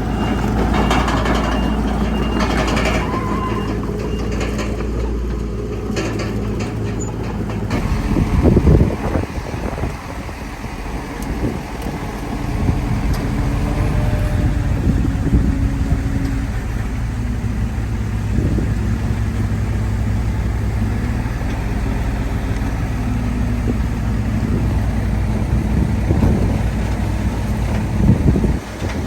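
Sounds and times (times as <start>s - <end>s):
metal clanks: 0.0s - 9.3s
heavy diesel machinery engine: 0.0s - 29.0s.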